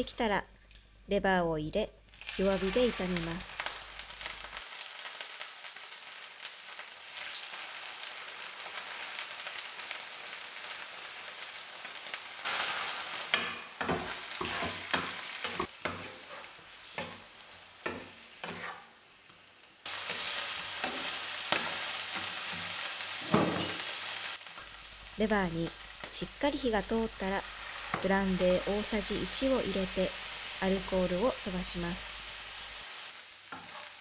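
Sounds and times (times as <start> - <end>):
meat sizzling in a frying pan: 2.1 - 34.0.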